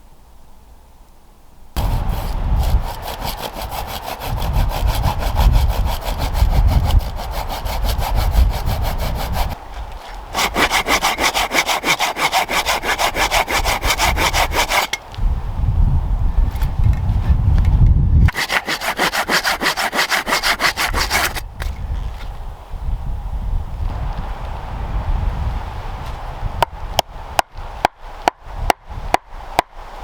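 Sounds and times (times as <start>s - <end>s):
hand saw cutting wood: 1.8s - 15.1s, 18.3s - 21.8s.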